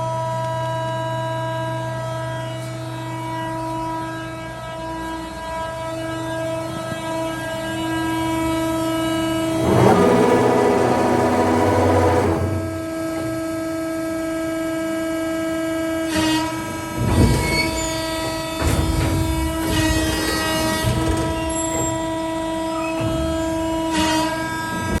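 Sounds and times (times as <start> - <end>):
hydraulic shear humming: 6.7 - 14.3.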